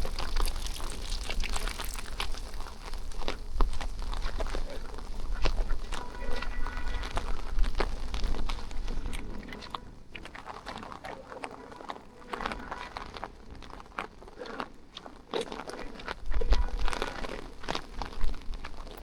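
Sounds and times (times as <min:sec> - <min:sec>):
rain pattering: 0:00.0 - 0:10.5
wind buffeting microphone: 0:00.0 - 0:10.5.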